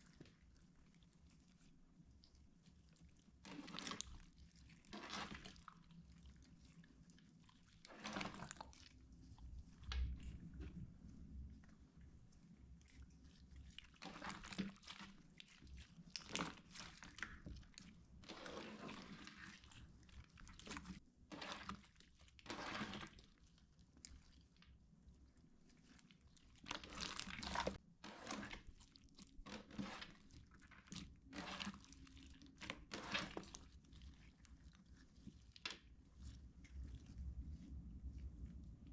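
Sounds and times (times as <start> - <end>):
hands squeezing slime: 0.0 - 38.9.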